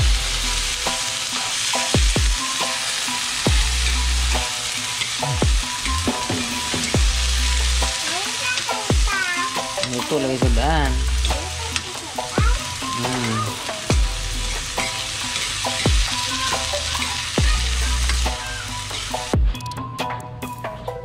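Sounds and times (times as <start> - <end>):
beans sizzling in a pan: 0.0 - 19.4
metal spoon stirring: 13.7 - 18.3.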